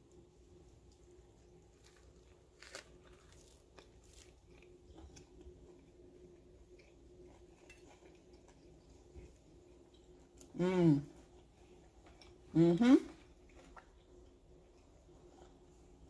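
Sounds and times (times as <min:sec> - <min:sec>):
person biting and chewing food: 0:01.6 - 0:05.7.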